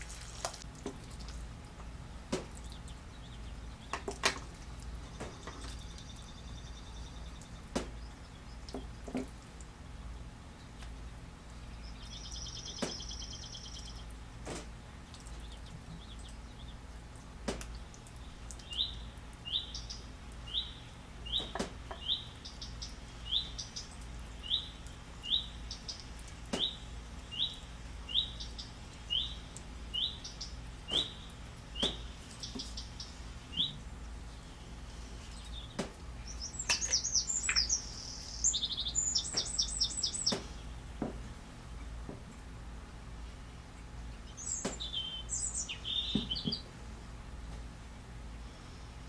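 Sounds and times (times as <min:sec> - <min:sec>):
bird chirping: 0:11.6 - 0:14.1, 0:18.2 - 0:40.7, 0:44.1 - 0:46.7.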